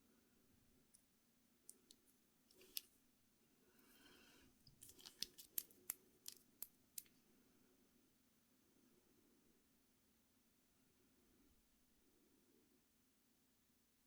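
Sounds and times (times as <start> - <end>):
packaging rustling: 4.7 - 7.1.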